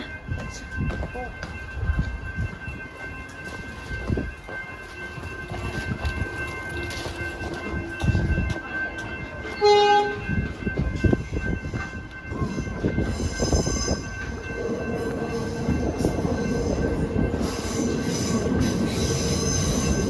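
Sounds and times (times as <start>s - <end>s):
train rumble: 0.0s - 20.0s
train horn blast: 9.6s - 10.3s.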